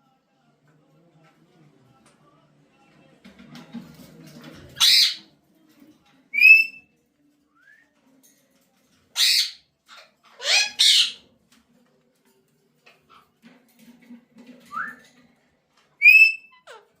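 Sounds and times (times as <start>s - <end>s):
parrot squawking: 4.8s - 5.2s, 9.2s - 9.6s, 10.3s - 11.2s, 16.0s - 17.0s
parrot shrill call: 10.4s - 11.2s, 16.0s - 16.6s.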